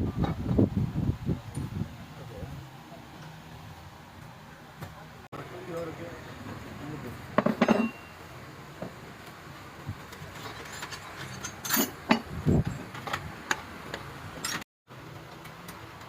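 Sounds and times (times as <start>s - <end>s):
hand tools clinking and knocking: 7.4s - 8.1s, 10.1s - 14.6s.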